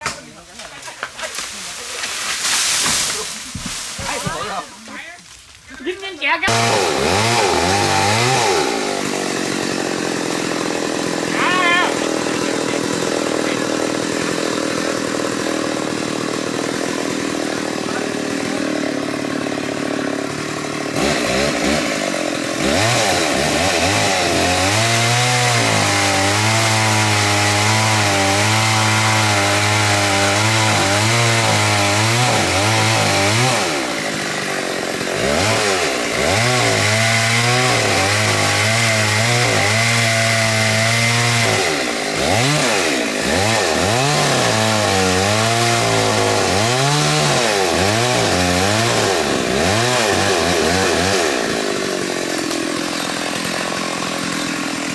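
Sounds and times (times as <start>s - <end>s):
chainsaw revving: 6.3s - 54.9s.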